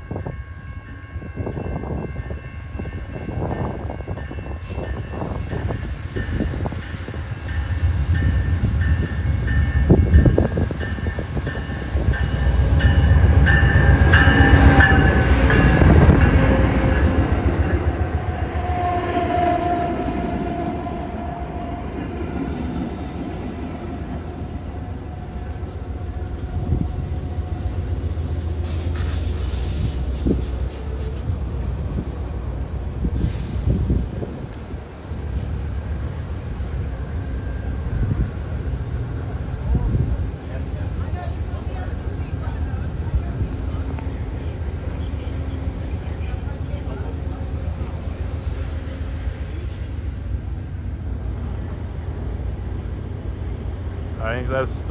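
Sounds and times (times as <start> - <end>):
train rumbling on rails: 0.0 - 54.9
high wheel squeals: 11.1 - 31.2.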